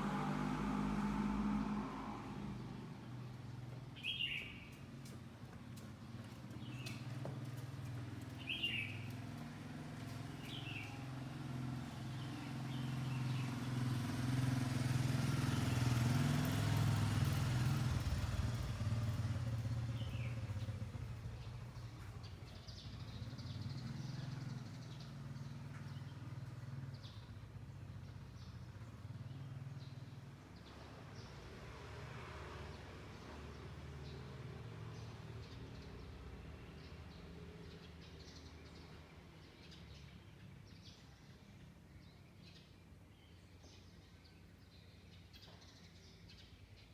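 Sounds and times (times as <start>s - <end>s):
motorcycle engine passing: 0.0s - 39.0s
bird chirps: 4.0s - 4.8s, 8.3s - 9.2s.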